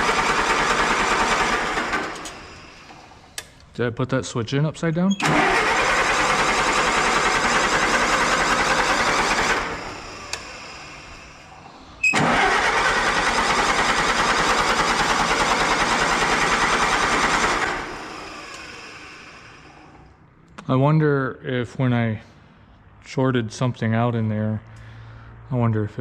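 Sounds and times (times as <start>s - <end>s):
engine starter cranking: 0.0s - 3.6s, 5.1s - 20.1s
click: 2.2s - 3.8s.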